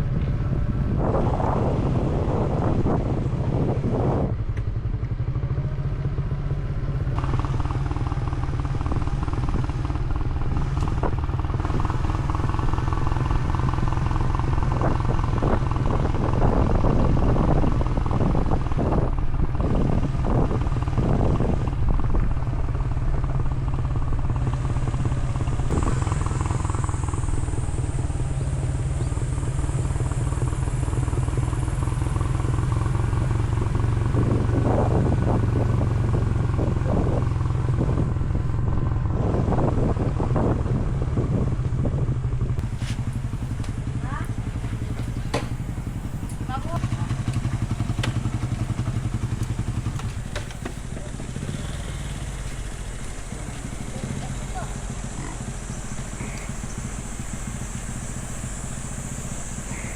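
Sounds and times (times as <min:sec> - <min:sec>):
vehicle engine droning: 0:00.0 - 0:59.9.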